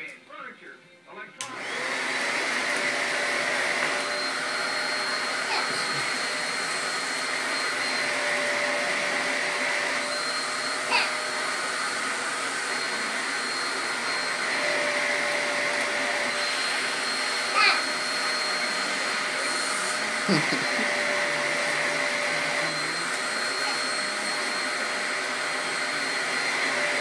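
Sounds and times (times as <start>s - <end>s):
vacuum cleaner switch click: 1.4s - 1.6s
vacuum cleaner running: 1.4s - 27.0s.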